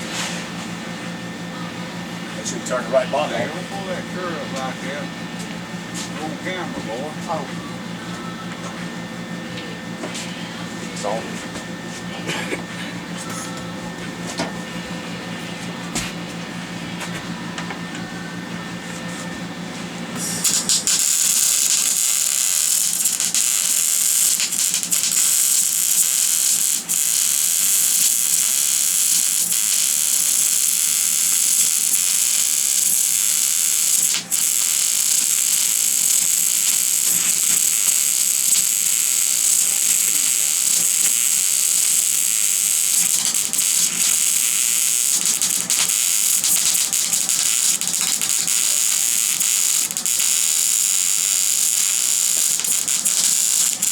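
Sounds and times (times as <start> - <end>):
welding arc crackling: 2.0 - 7.2, 20.2 - 53.9.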